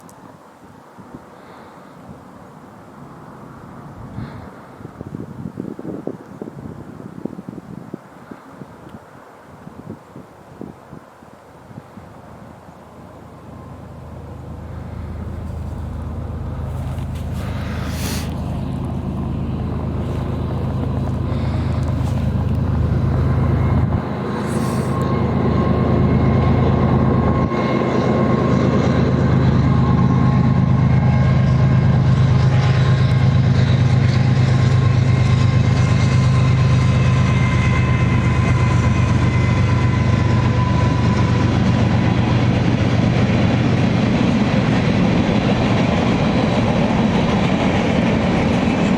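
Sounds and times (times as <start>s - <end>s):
rail and wheel noise: 0.0s - 48.9s
locomotive engine rumble: 13.0s - 48.9s.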